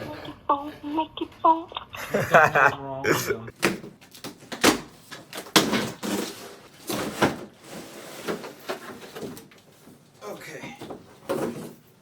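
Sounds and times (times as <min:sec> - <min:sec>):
household knocks and bumps: 0:03.5 - 0:09.5, 0:10.6 - 0:12.0.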